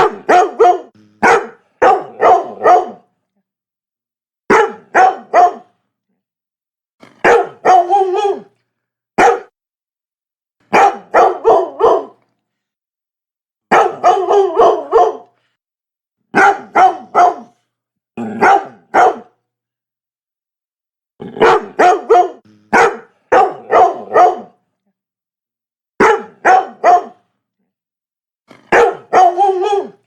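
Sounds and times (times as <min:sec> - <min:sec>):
dog barking: 0:00.0 - 0:03.1, 0:04.5 - 0:05.7, 0:07.2 - 0:08.5, 0:09.2 - 0:09.6, 0:10.7 - 0:12.2, 0:13.7 - 0:15.3, 0:16.3 - 0:17.6, 0:18.3 - 0:19.4, 0:21.3 - 0:24.6, 0:26.0 - 0:27.3, 0:28.6 - 0:30.0.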